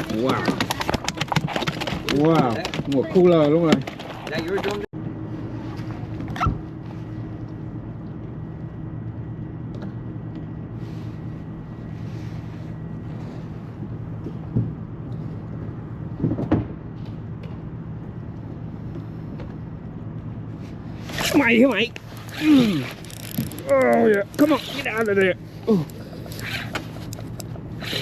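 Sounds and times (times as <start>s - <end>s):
boat motor humming: 20.8s - 28.0s.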